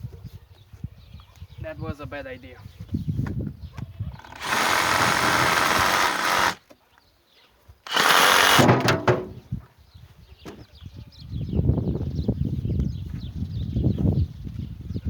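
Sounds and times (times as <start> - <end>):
power saw cutting wood: 4.2 - 6.6, 7.9 - 9.4.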